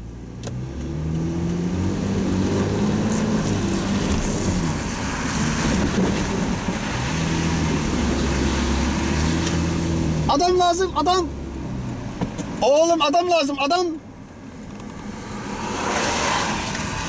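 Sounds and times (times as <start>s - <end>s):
car engine from inside cabin: 0.0s - 17.0s.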